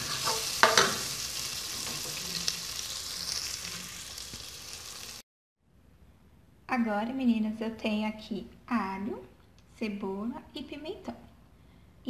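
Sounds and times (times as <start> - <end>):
sausage and bacon sizzling in a pot: 0.0 - 5.2.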